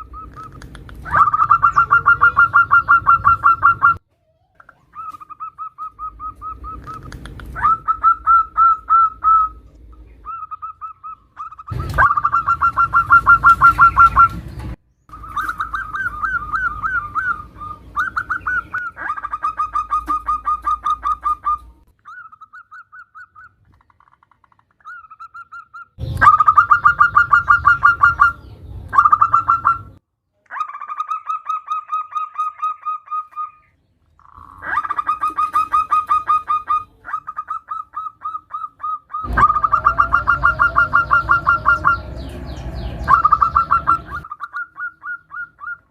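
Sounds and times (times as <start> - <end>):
dove cooing: 0.0 - 4.0, 4.7 - 14.5, 15.1 - 23.5, 26.0 - 30.0, 34.3 - 45.9.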